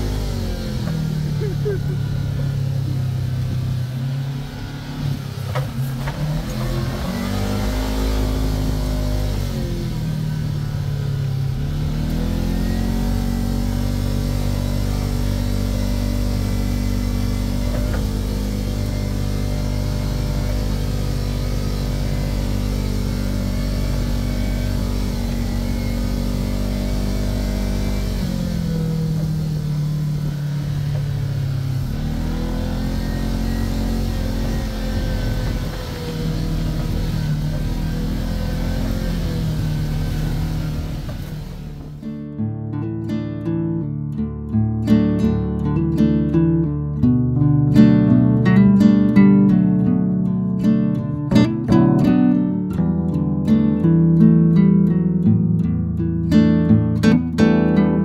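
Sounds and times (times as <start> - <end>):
side-by-side engine revving: 0.0 - 42.1.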